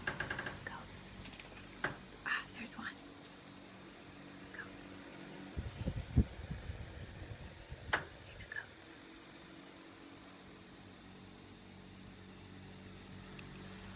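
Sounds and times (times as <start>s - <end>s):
crickets trilling: 0.0s - 13.9s
low steady hum: 0.0s - 13.9s
soft knocks: 1.8s - 2.1s.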